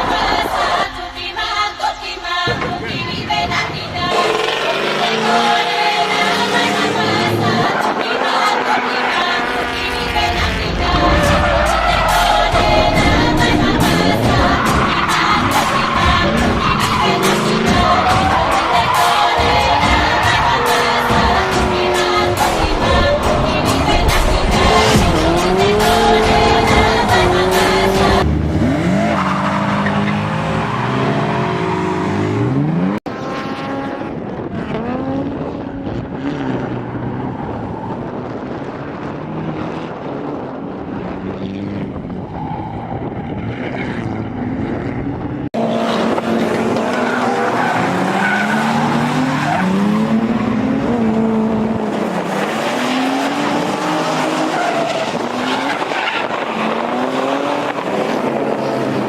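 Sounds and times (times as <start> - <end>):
car engines revving: 0.0 - 59.0
tyres squealing: 11.0 - 28.2, 45.8 - 50.4.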